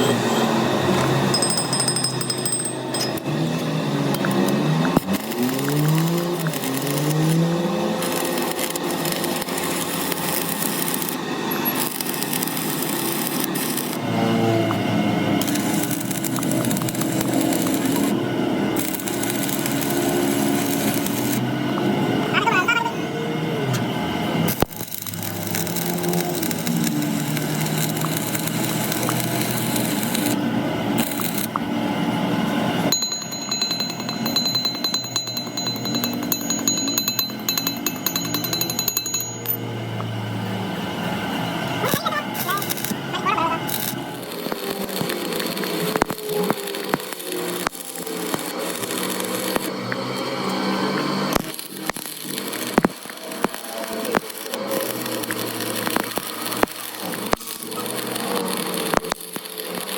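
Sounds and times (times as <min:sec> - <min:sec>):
machine tool cutting metal: 0:00.0 - 0:22.8, 0:23.7 - 0:31.6, 0:32.4 - 0:40.6, 0:41.6 - 0:59.9
motor hum: 0:00.0 - 0:59.9.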